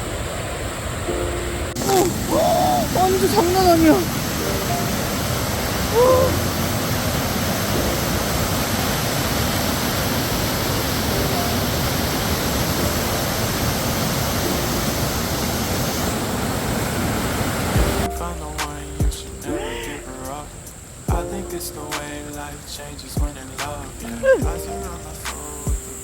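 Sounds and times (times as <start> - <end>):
heavy rain: 0.0 - 26.0
short voice-like sound: 1.8 - 4.1.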